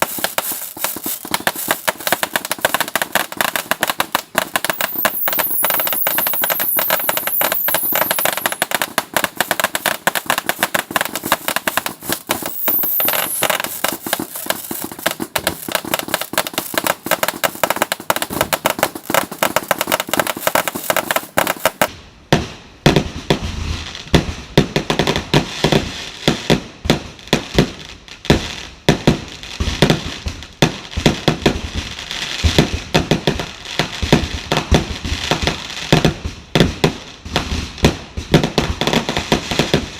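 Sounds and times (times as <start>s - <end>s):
fireworks whistling: 0.0s - 17.8s, 20.0s - 21.9s
fireworks crackling: 0.0s - 22.0s
heavy firework bangs: 0.0s - 23.6s.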